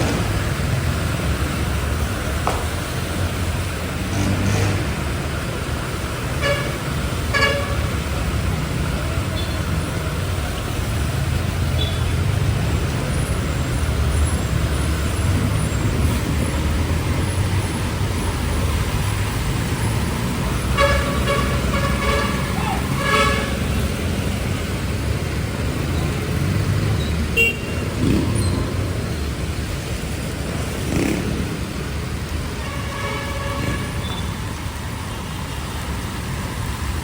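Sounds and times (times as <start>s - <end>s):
city street traffic rumble: 0.0s - 37.0s
vehicle horn tooting: 6.4s - 8.0s, 20.7s - 23.9s, 27.4s - 27.8s, 32.6s - 34.3s.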